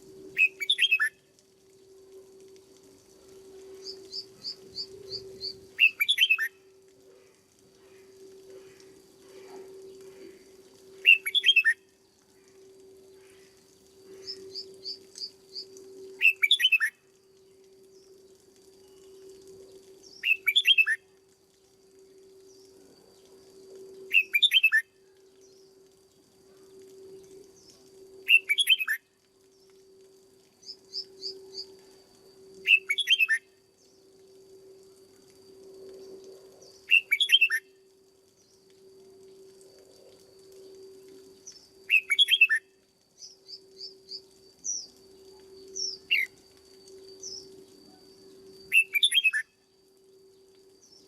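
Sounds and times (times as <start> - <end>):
steady low hum: 0.0 - 51.0
bird singing: 0.3 - 1.2, 3.4 - 6.7, 7.8 - 21.6, 22.3 - 26.2, 26.9 - 30.0, 30.6 - 34.2, 36.0 - 38.7, 40.5 - 51.0
bird warbling song: 0.3 - 1.2, 3.7 - 6.6, 11.0 - 11.8, 13.2 - 16.9, 20.0 - 21.0, 24.0 - 24.8, 27.6 - 29.0, 32.6 - 33.5, 36.6 - 37.7, 41.4 - 45.0, 45.6 - 46.4, 48.6 - 49.5
soft bird chirps: 0.4 - 1.2, 3.4 - 30.0, 32.6 - 34.2, 35.9 - 38.7, 40.5 - 51.0.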